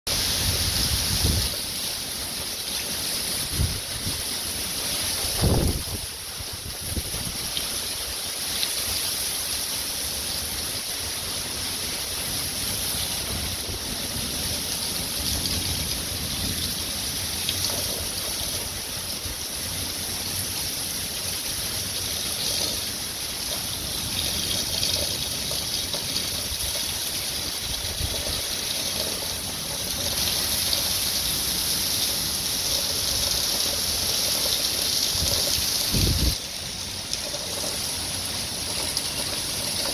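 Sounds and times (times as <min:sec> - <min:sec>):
heavy pouring rain: 0:00.1 - 0:39.9
wind gusting against microphone: 0:00.2 - 0:01.7, 0:03.3 - 0:04.4, 0:05.2 - 0:08.1, 0:26.5 - 0:28.7, 0:35.0 - 0:36.4.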